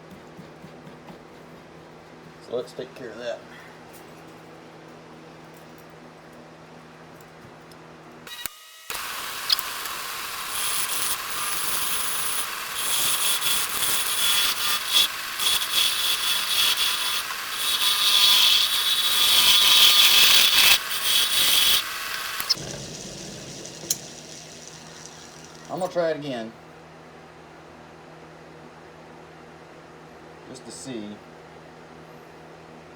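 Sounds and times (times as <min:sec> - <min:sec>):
lathe tool scraping wood: 0:08.9 - 0:26.0.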